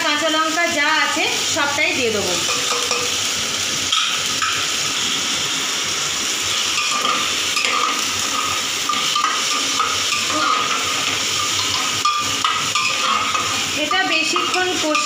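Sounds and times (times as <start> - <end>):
food sizzling in hot oil: 0.0 - 15.0
metal spatula scraping pot: 6.8 - 15.0.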